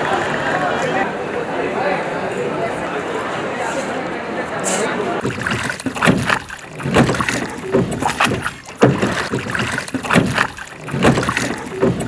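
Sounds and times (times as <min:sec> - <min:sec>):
oars knocking and splashing: 0:04.6 - 0:12.0.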